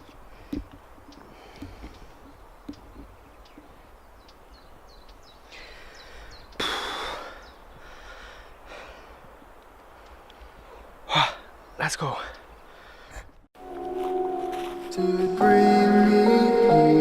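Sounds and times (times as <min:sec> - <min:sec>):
person breathing hard: 0:05.5 - 0:09.2, 0:12.7 - 0:13.4.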